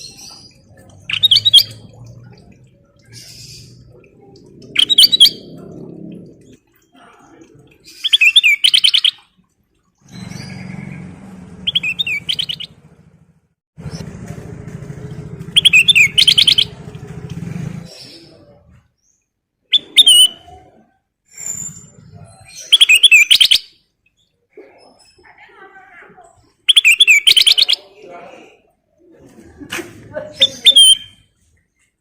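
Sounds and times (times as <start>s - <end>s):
bulbul chirping: 0.0s - 4.0s, 4.7s - 5.6s, 7.9s - 9.3s, 11.6s - 12.8s, 15.5s - 16.9s, 26.7s - 27.9s.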